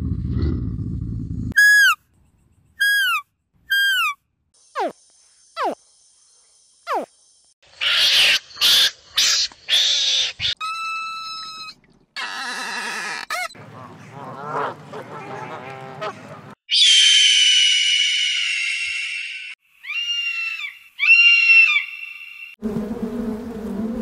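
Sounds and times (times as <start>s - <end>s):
falling whistles: 1.6s - 2.0s
varied animal calls: 7.8s - 22.0s.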